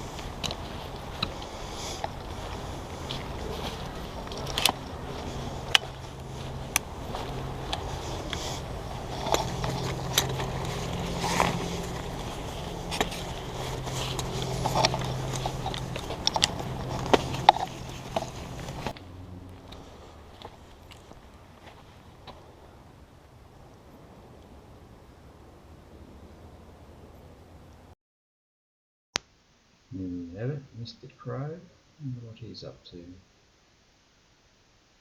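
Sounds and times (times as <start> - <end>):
footsteps crunching: 0.0 - 23.0
steady low hum: 0.0 - 27.9.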